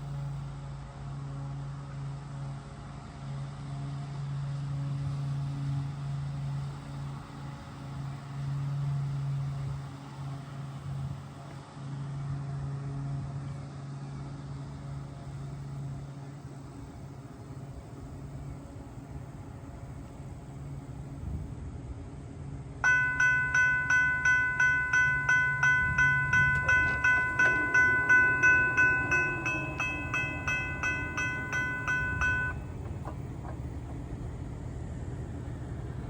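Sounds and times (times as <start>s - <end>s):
diesel locomotive engines droning: 22.6s - 36.0s.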